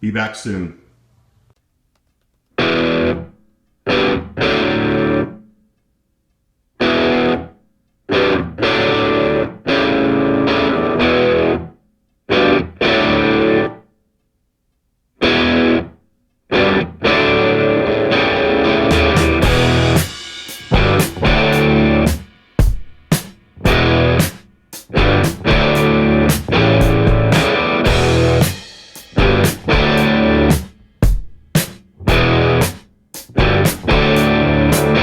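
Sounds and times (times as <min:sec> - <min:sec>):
distorted electric guitar chords: 0:02.6 - 0:03.3, 0:03.9 - 0:05.4, 0:06.8 - 0:07.5, 0:08.1 - 0:11.7, 0:12.3 - 0:13.8, 0:15.2 - 0:15.9, 0:16.5 - 0:22.3, 0:23.6 - 0:30.8, 0:32.0 - 0:35.0.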